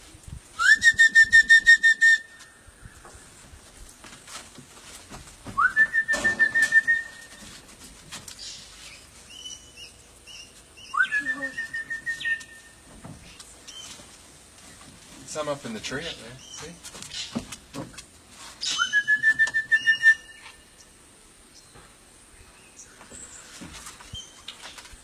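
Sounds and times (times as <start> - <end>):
trilling whistle: 0.6 - 2.5, 5.6 - 7.4, 10.8 - 12.8, 18.6 - 20.6.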